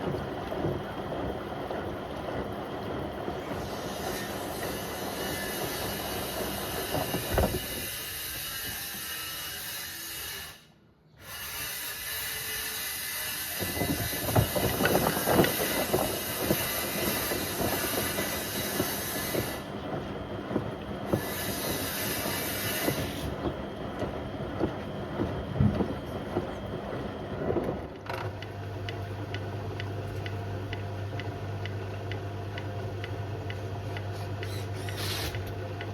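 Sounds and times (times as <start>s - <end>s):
washing machine water swishing: 0.0s - 8.5s, 13.6s - 28.0s.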